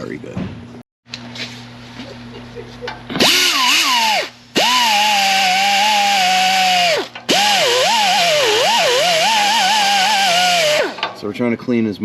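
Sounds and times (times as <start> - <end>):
wire wheel grinding metal: 3.3 - 11.2.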